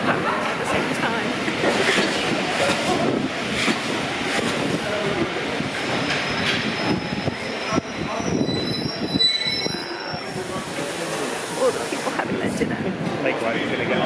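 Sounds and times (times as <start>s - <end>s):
train wheels rumbling on track: 0.0s - 14.0s
high wheel squeal: 6.0s - 12.0s.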